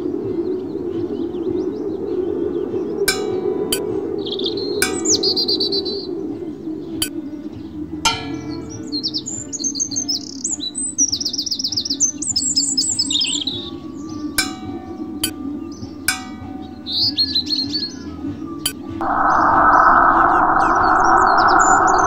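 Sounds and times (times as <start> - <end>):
ringing struck notes: 3.1 - 3.9, 4.8 - 5.5, 8.1 - 9.0, 14.4 - 15.4, 16.1 - 16.9
birds trilling: 19.0 - 22.0
low hum: 19.0 - 22.0.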